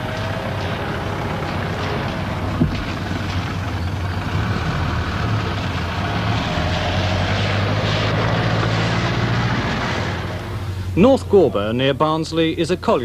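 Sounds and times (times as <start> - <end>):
car engine running: 0.0 - 6.6.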